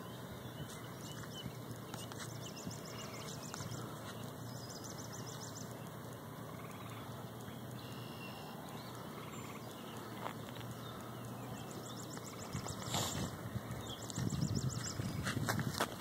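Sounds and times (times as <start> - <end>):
faint high bird chirps: 0.0 - 15.3
steady low hiss: 0.0 - 16.0
bird trilling: 6.5 - 15.2.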